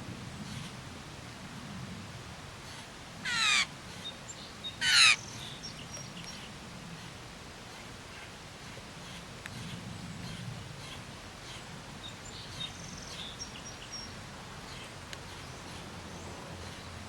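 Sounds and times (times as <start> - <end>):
bird trilling: 3.3 - 3.7, 4.8 - 5.3.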